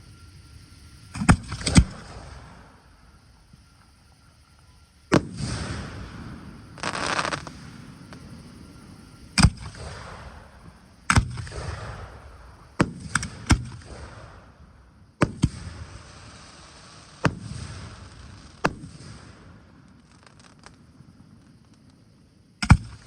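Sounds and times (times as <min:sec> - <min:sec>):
fireworks shells bursting: 0:06.8 - 0:08.2.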